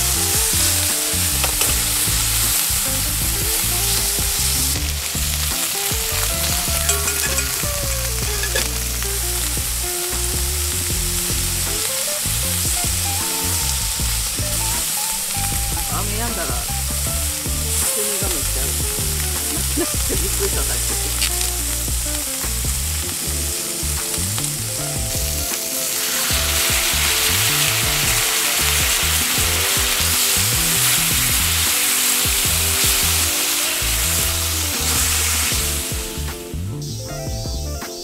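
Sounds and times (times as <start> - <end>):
food sizzling in a frying pan: 0.0 - 36.6
chopsticks stirring food: 5.6 - 9.0.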